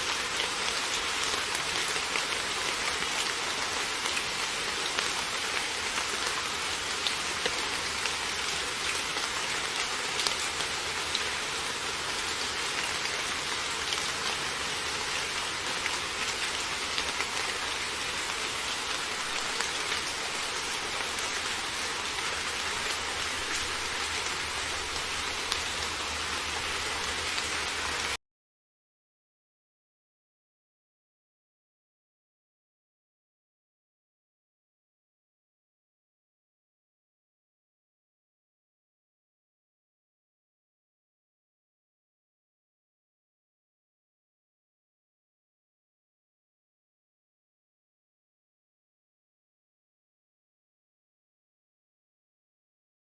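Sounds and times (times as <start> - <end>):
heavy rain: 0.0 - 28.2.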